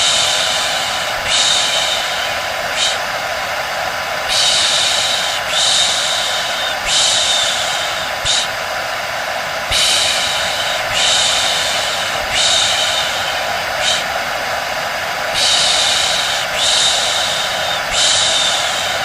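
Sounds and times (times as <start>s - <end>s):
hair dryer whooshing: 0.0s - 19.0s
person shushing: 9.7s - 14.6s, 15.3s - 19.0s.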